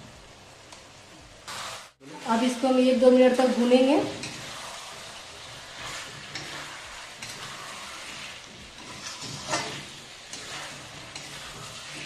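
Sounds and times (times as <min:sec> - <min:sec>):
curry sizzling in a pan: 0:00.0 - 0:12.0
metal spatula scraping pan: 0:03.5 - 0:12.0.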